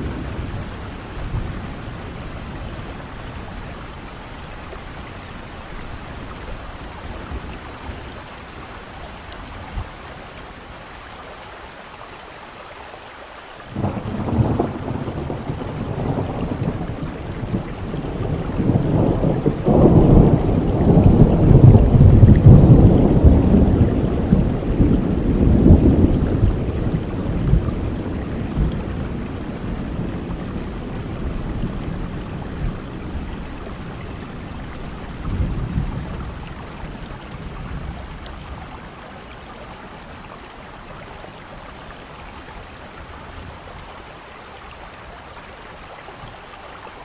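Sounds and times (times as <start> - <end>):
long roll of thunder: 0.0 - 5.0, 13.7 - 39.0
steady rain falling: 0.0 - 47.0.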